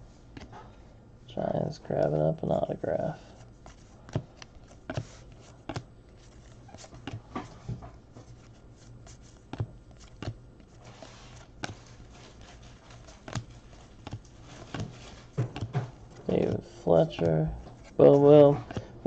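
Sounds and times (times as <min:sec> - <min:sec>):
faint room hum: 0:00.0 - 0:19.0
trading cards clicking and snapping: 0:03.6 - 0:07.5, 0:09.3 - 0:10.8, 0:11.4 - 0:16.6, 0:17.2 - 0:18.9.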